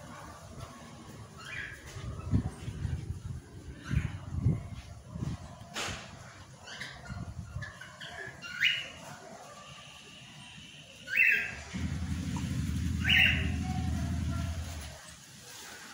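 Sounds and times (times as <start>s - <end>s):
bird calling sharply: 11.1s - 14.8s
steady low rumble: 11.7s - 15.0s.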